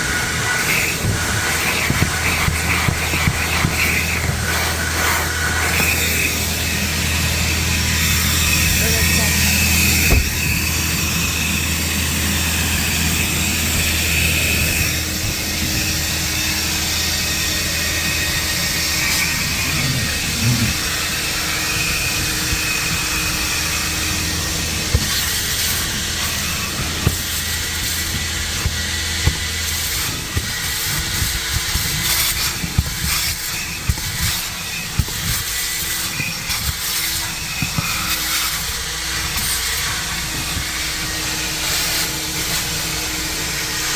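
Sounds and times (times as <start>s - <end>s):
vacuum hose air hiss: 0.0s - 43.9s
nozzle knocks and clicks: 9.9s - 10.9s.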